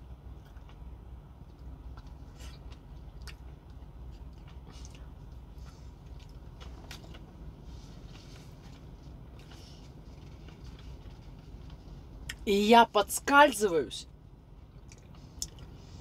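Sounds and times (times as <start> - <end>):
steady low hum: 0.0 - 16.0
person chewing: 0.4 - 7.4, 14.7 - 15.9
wet mouth clicks and smacks: 1.9 - 5.1, 14.8 - 15.7.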